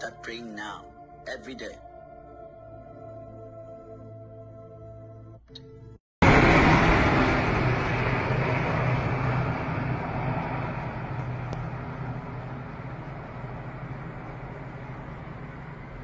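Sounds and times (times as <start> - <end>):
soft ambient music: 0.0 - 6.0, 9.7 - 16.0
low hum: 5.6 - 16.0
loud steady rushing noise: 6.2 - 16.0.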